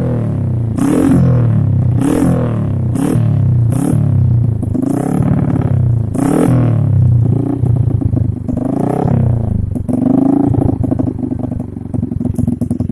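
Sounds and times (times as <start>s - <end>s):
motorcycle engine revving: 0.0s - 12.9s.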